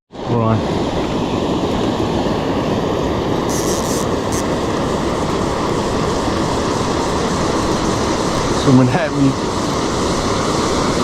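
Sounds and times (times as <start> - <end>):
waterfall roaring: 0.2 - 11.0
short high hiss: 2.4 - 10.5.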